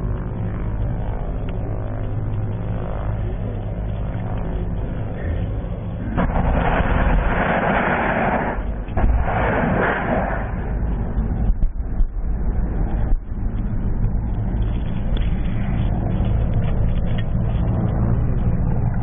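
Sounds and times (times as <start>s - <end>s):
helicopter rotor drone: 0.0s - 19.0s
loud rushing noise: 6.1s - 10.9s.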